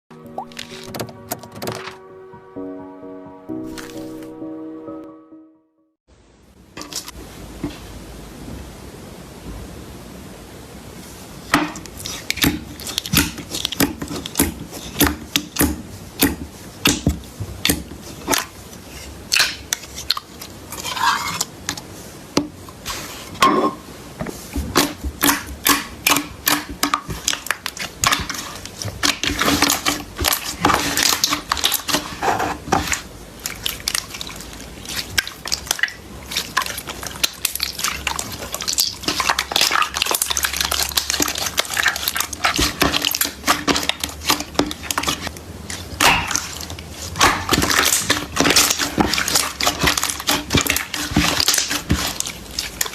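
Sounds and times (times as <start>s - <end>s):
slime squishing with sticky pops: 11.5s - 23.0s, 24.3s - 52.9s.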